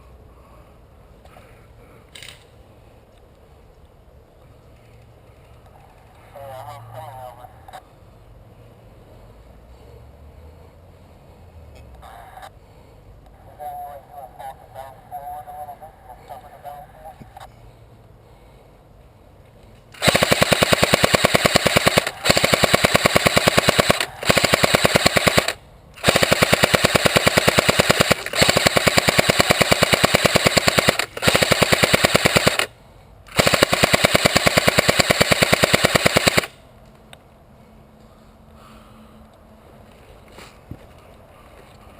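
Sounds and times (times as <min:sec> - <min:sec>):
airsoft gun firing full auto: 0:20.0 - 0:32.7, 0:33.3 - 0:36.6.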